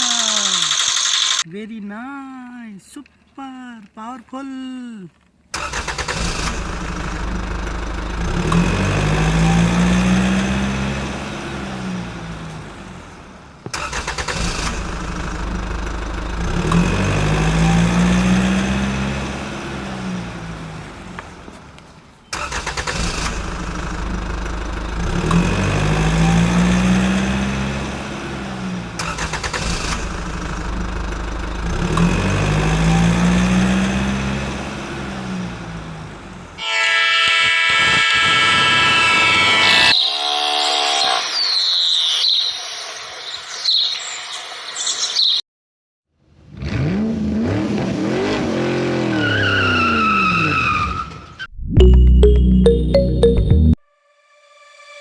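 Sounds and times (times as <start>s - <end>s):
vehicle engine revving: 5.6s - 21.5s, 22.3s - 36.6s, 46.4s - 50.1s.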